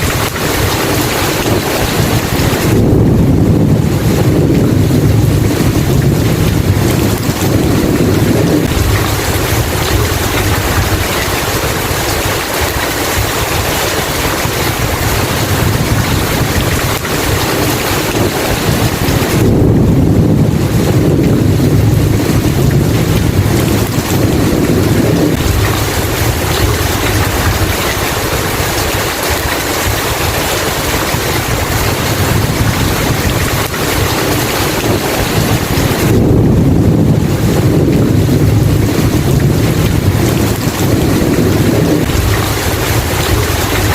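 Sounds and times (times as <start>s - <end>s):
heavy rain: 0.0s - 43.9s
rolling thunder: 0.0s - 43.9s.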